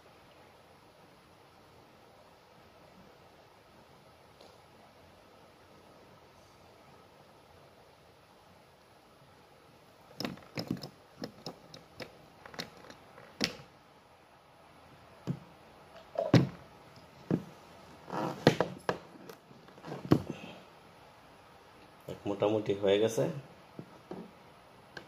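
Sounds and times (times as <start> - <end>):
plastic pipe fittings knocking: 10.2 - 13.6.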